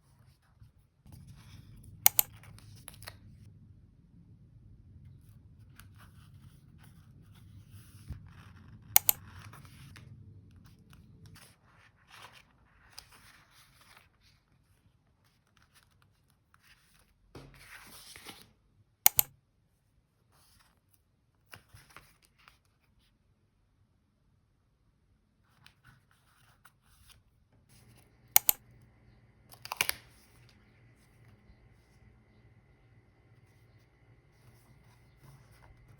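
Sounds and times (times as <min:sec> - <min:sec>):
scissors snipping paper: 0:02.1 - 0:02.3, 0:19.1 - 0:19.3
sharp double clicks: 0:02.1 - 0:02.3, 0:09.0 - 0:09.2, 0:19.1 - 0:19.3, 0:28.4 - 0:28.6.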